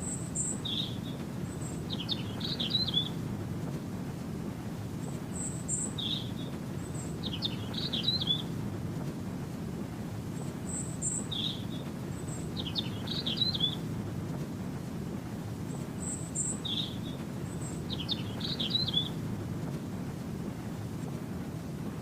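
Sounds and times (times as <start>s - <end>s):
bird chirping and trilling: 0.0s - 3.2s, 5.4s - 8.5s, 10.7s - 13.8s, 16.0s - 19.2s.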